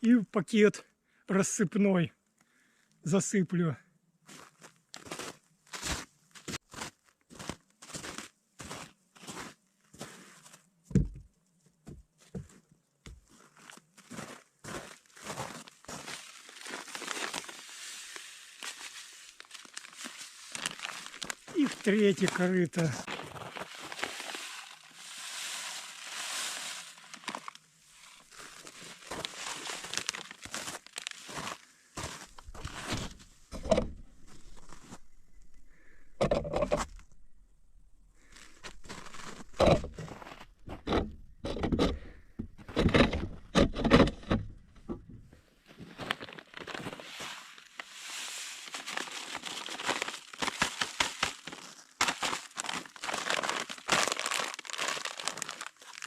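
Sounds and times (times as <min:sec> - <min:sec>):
plastic bag rustling: 0:16.3 - 0:36.0, 0:38.0 - 0:40.7, 0:46.0 - 0:56.0
salt pouring into trough: 0:23.6 - 0:27.5
scraping: 0:32.0 - 0:45.4.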